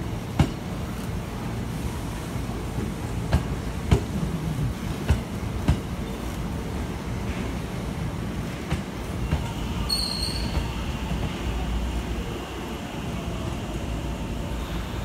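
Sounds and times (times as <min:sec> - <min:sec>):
train rumbling past: 0:00.0 - 0:15.0
high-pitched wheel squeal: 0:09.9 - 0:10.7.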